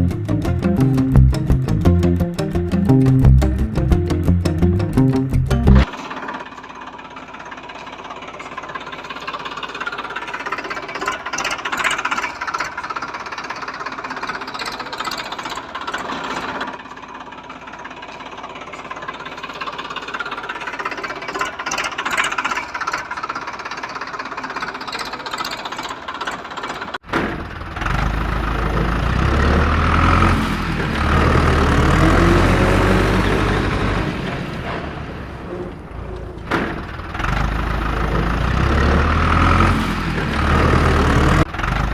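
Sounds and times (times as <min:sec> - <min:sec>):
deeper engine revving: 0:00.0 - 0:05.9, 0:27.3 - 0:41.9
engine running with knocking: 0:00.0 - 0:32.9, 0:36.0 - 0:41.9.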